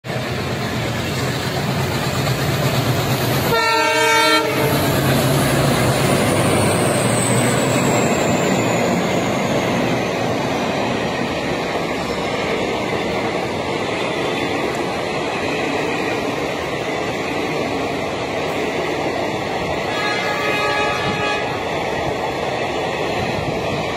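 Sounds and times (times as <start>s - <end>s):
train rumbling: 0.0s - 23.9s
train horn blast: 3.5s - 4.9s, 19.9s - 21.6s.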